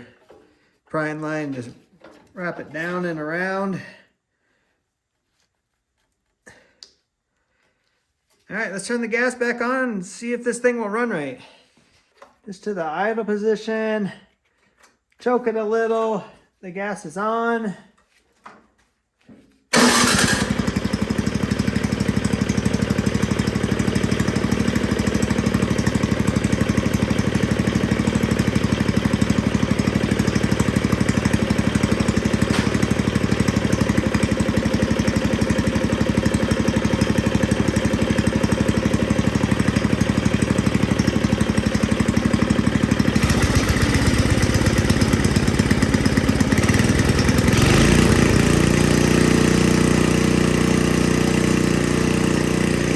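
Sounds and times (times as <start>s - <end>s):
snowblower engine starting and running: 19.7s - 52.9s.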